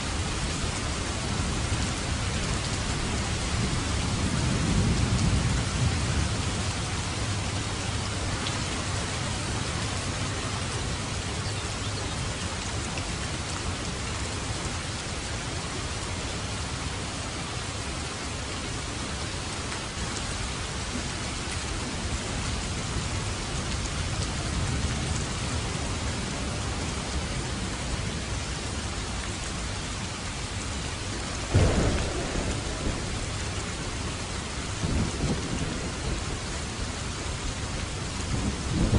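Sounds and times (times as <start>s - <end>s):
heavy rain: 0.0s - 38.9s
loud thunderclap: 31.5s - 36.3s
low rolls of thunder: 31.5s - 37.5s, 38.2s - 38.9s.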